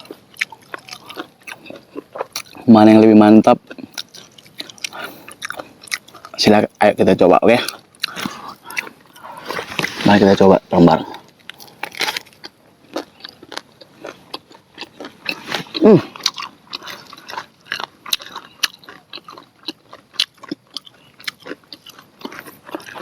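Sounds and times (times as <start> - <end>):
crunchy biting and chewing: 0.0 - 6.6, 7.5 - 23.0
person humming: 15.8 - 16.1.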